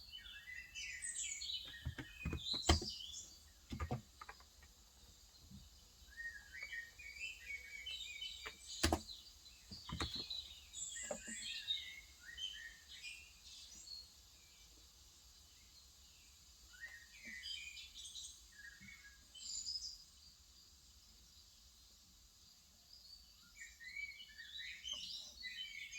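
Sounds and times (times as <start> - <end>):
small birds chirping: 0.0 - 25.9
keyboard keystroke clicks: 8.8 - 9.0.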